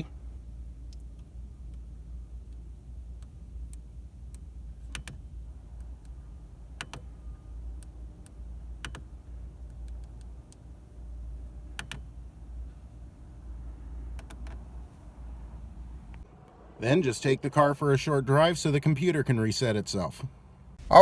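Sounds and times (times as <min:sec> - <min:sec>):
low rumble: 0:20.7 - 0:21.0.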